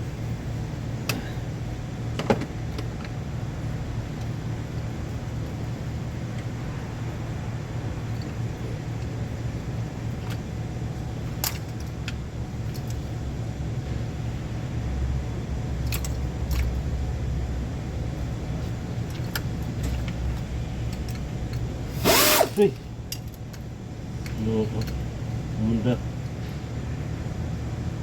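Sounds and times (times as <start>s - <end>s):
low motor hum: 0.0s - 28.0s.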